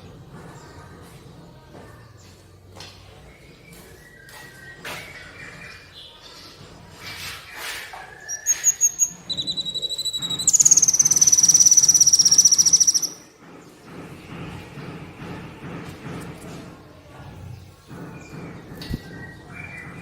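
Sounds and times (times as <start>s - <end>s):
high bird chirps: 8.0s - 13.3s
rapid pulsed bird trill: 8.3s - 13.3s.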